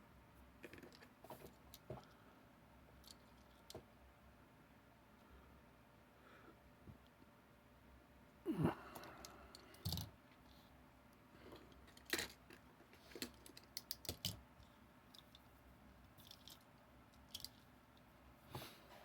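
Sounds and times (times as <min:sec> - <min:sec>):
toy trucks clicking and knocking: 0:11.7 - 0:14.4, 0:16.2 - 0:17.6.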